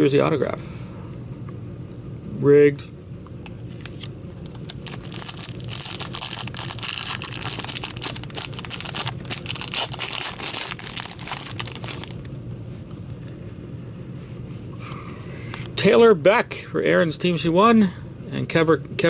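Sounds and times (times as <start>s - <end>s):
plastic wrapping crinkling and tearing: 4.3s - 12.3s.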